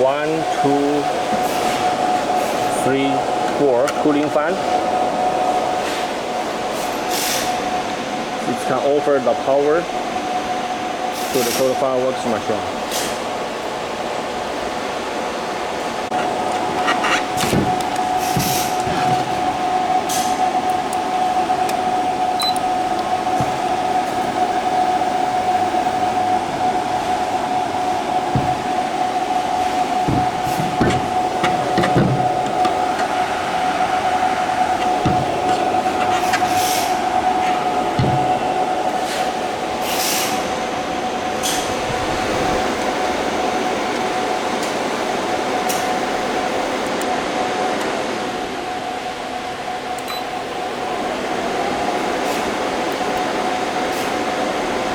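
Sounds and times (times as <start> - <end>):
electric cooling fans whirring: 0.0 - 54.9.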